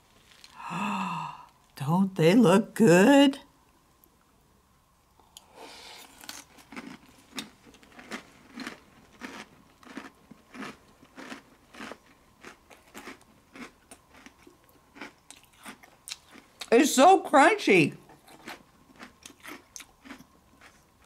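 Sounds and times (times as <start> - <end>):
crunchy chewing: 5.2 - 16.7, 18.0 - 21.0.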